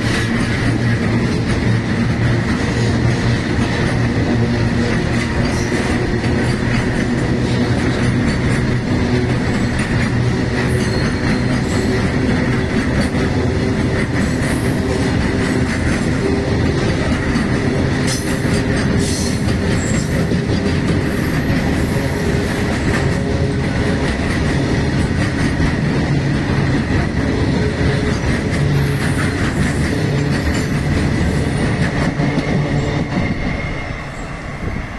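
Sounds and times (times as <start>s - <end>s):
freight train rumble and rattle: 0.0s - 34.9s
faint high wheel squeal: 10.7s - 12.0s.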